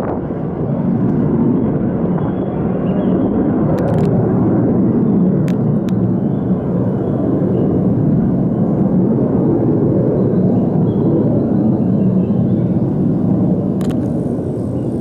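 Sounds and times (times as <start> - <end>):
fighter jets taking off: 0.0 - 15.0
faint clicks: 13.8 - 14.8.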